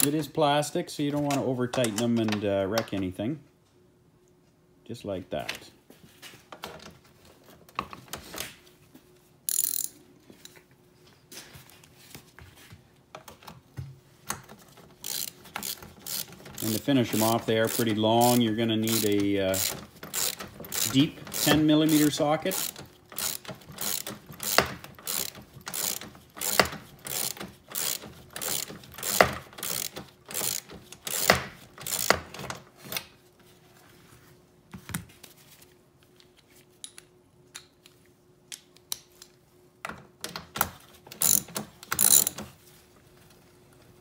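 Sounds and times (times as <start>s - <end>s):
socket ratchet clicking: 15.0s - 32.3s, 41.2s - 42.4s.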